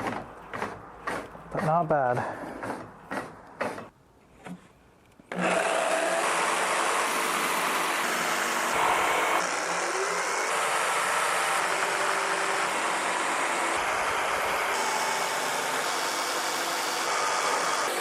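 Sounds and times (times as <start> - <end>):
electric power tool running: 5.3 - 18.0.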